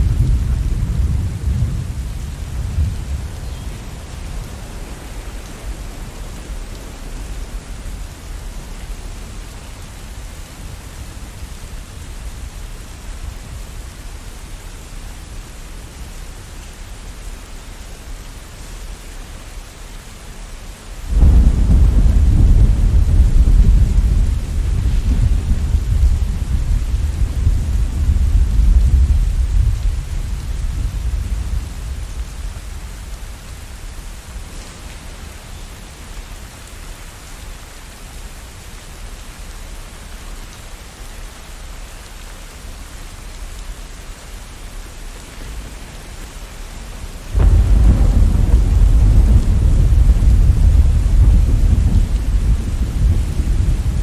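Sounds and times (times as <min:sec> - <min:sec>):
thunder rumbling: 0:00.0 - 0:09.0, 0:21.1 - 0:36.2, 0:45.4 - 0:54.0
steady rain: 0:00.0 - 0:54.0.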